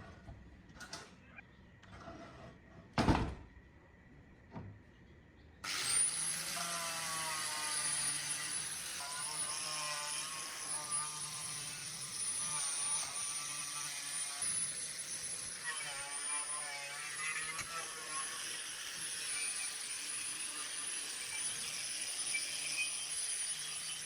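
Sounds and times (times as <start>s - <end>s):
power tool whining: 5.6s - 24.0s.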